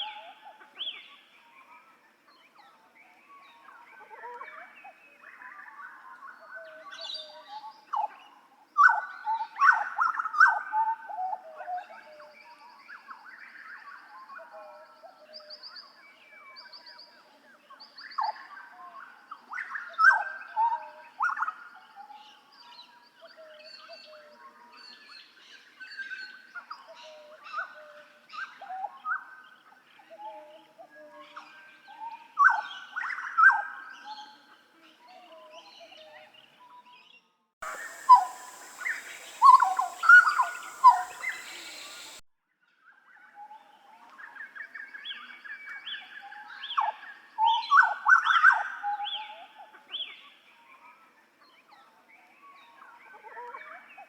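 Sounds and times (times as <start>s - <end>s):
bird singing whistled notes: 37.6s - 42.2s.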